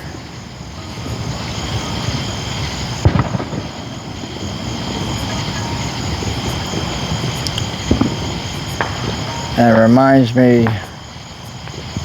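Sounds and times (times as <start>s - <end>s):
insects chirring: 0.0s - 12.0s
distant firework pop: 3.0s - 3.8s.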